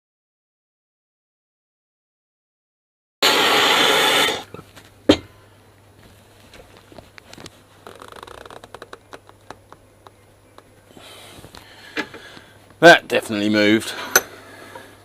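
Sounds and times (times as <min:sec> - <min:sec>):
gas torch flame hissing: 0:03.2 - 0:04.5.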